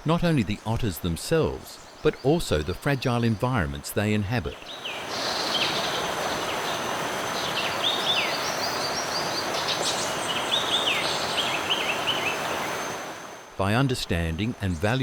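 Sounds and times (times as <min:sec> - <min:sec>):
steady rushing noise: 0:04.7 - 0:13.6.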